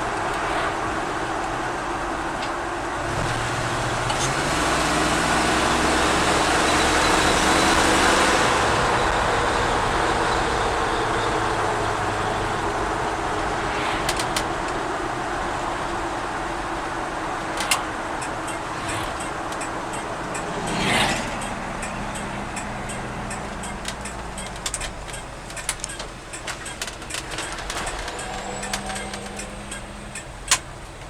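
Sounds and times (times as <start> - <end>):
road and wind noise: 0.0 - 31.0
truck engine accelerating: 0.0 - 31.0
sharp clicks: 17.6 - 30.7.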